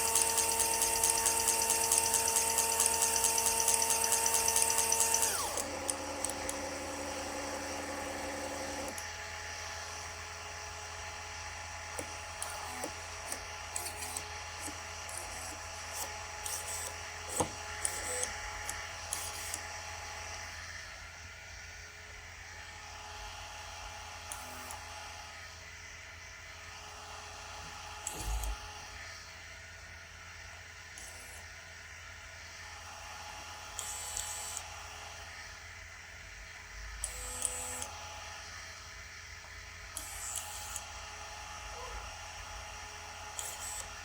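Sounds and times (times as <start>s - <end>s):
stepper motors whining: 0.0s - 9.2s, 11.9s - 19.8s, 39.9s - 44.0s.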